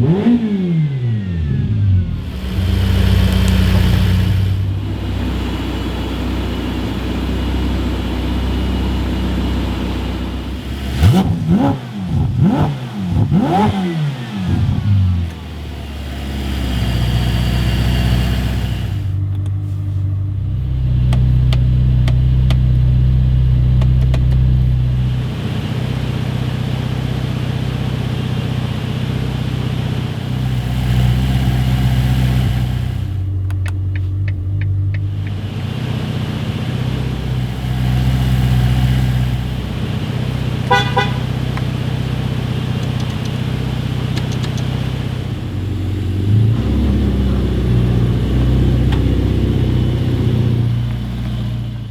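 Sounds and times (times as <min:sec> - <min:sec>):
car engine at low revs: 0:00.0 - 0:51.9.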